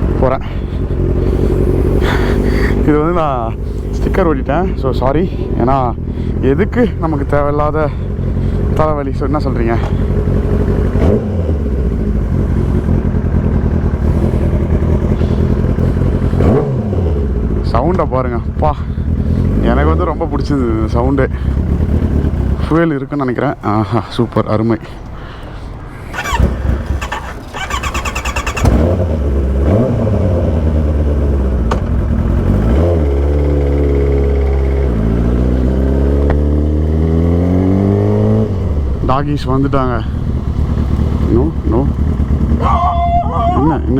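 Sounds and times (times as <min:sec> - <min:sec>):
motorcycle engine idling and revving: 0:00.0 - 0:25.1, 0:26.0 - 0:43.9
starter motor cranking: 0:26.1 - 0:28.9.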